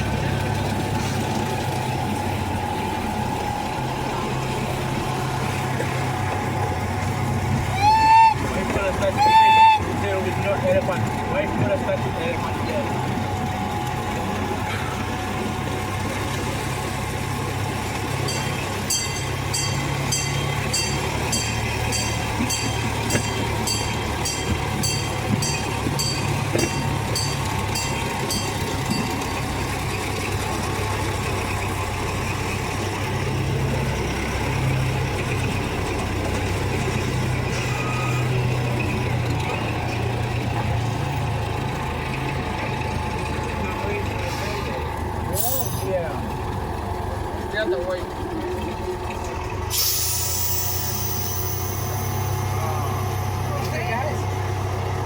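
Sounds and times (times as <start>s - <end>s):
train low rumble: 0.0s - 55.0s
bell ringing: 18.2s - 29.3s, 45.3s - 45.9s, 50.2s - 54.0s.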